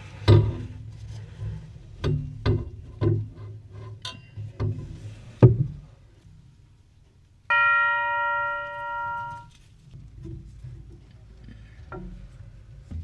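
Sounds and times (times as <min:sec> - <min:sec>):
clock chime tube ringing: 0:07.5 - 0:09.5.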